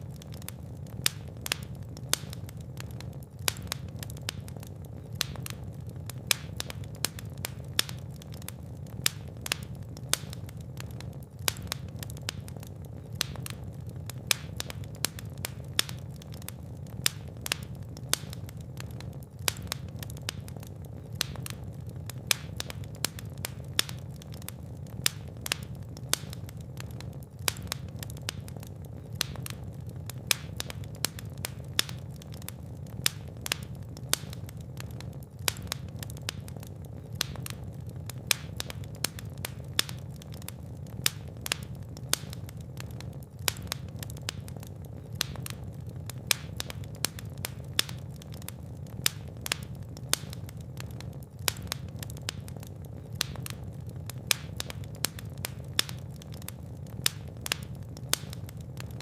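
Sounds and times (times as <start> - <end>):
fire crackling and popping: 0.0 - 59.0
low rumble of flames: 0.0 - 59.0.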